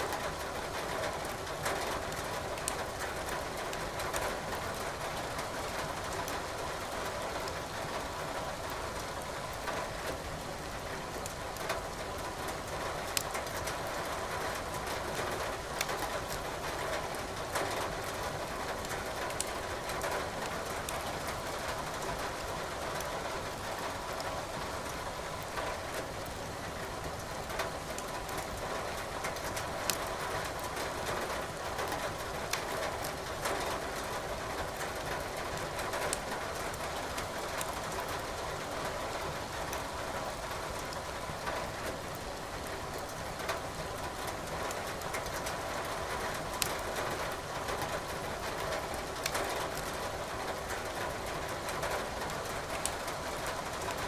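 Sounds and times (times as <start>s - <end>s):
wood fire crackling: 29.6s - 30.1s, 37.2s - 38.2s, 46.5s - 46.8s.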